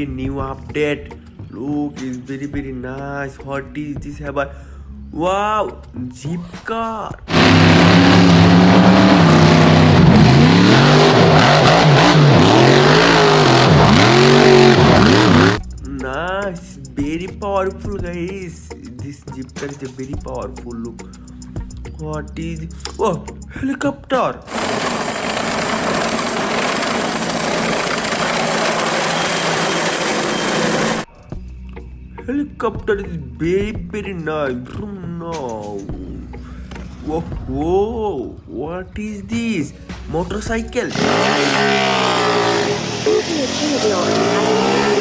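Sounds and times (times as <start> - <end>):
car engine revving: 7.3 - 15.6, 24.5 - 31.0, 40.8 - 45.0
helicopter rotor noise: 24.5 - 31.0
thin high whine: 24.5 - 31.0.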